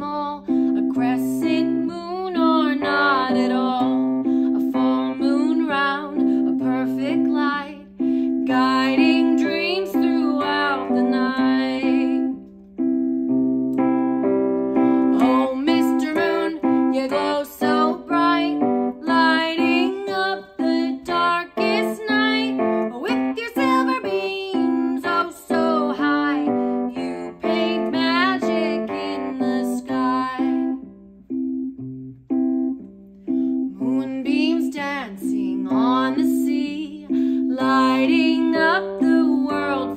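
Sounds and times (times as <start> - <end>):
woman singing children's song: 0.0 - 12.5, 14.8 - 31.0, 33.6 - 39.9
piano accompaniment: 0.0 - 39.9.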